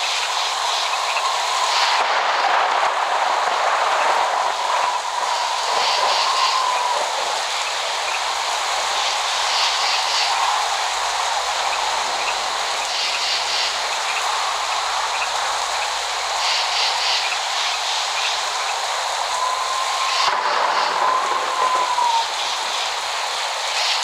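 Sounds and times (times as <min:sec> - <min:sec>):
heavy rainfall: 0:00.0 - 0:24.0
faint whistling tone: 0:19.3 - 0:22.4.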